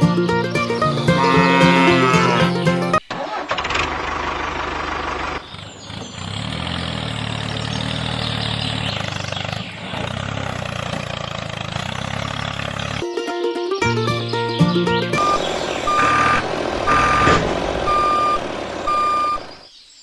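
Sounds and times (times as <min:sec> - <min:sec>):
music: 0:00.0 - 0:03.0, 0:13.0 - 0:15.2.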